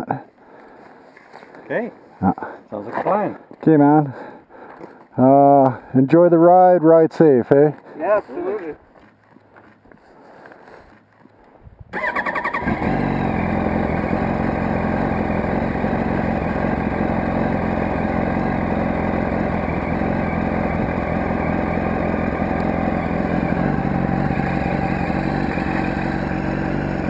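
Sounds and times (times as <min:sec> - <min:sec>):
motorcycle engine starting and idling: 0:10.8 - 0:27.0.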